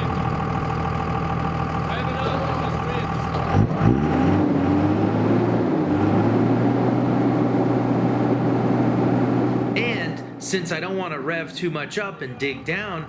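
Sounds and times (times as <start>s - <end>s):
pickup truck engine revving: 0.0s - 10.4s.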